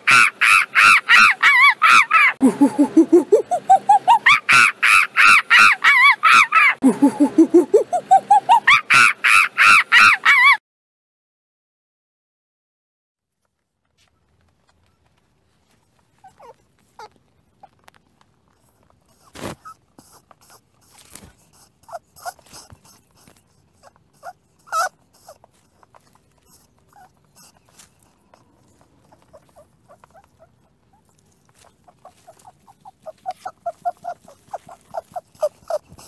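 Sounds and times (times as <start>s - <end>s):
rabbit scratching and clicking: 13.4s - 36.0s.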